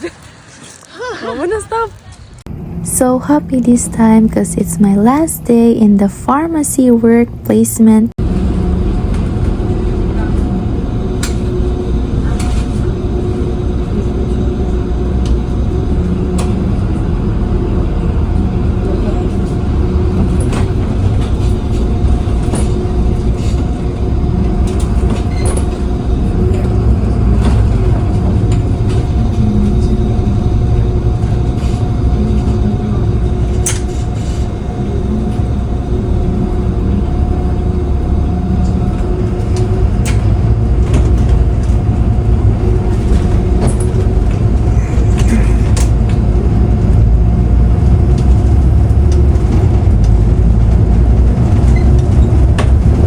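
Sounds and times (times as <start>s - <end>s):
motor hum: 0.0s - 53.0s
vehicle rumble from inside: 1.9s - 53.0s.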